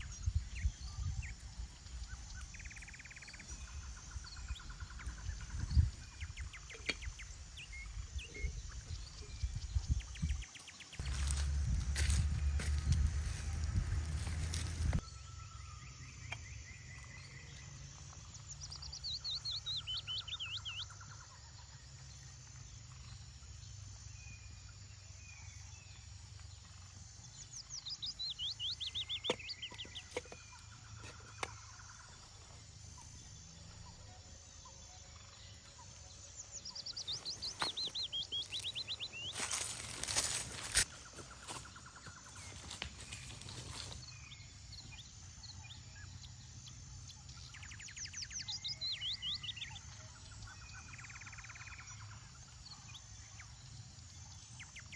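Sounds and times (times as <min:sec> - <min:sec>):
songbird singing: 0:00.0 - 0:54.9
low wind rumble: 0:11.0 - 0:15.0.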